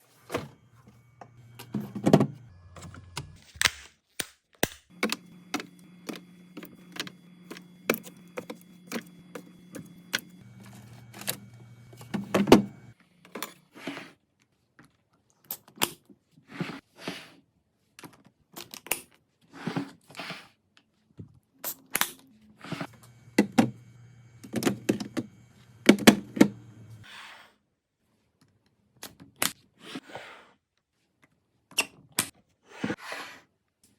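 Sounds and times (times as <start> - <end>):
low steady hum: 0.0 - 3.4, 4.9 - 13.0, 22.9 - 27.0.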